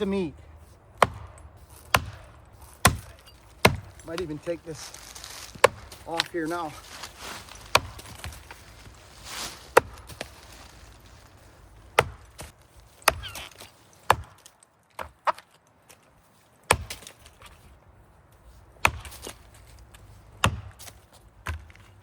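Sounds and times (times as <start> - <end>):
axe chopping wood: 1.0 - 4.5, 5.3 - 6.7, 7.4 - 8.6, 9.4 - 10.4, 11.9 - 15.5, 16.7 - 17.5, 18.8 - 19.6, 20.3 - 21.9.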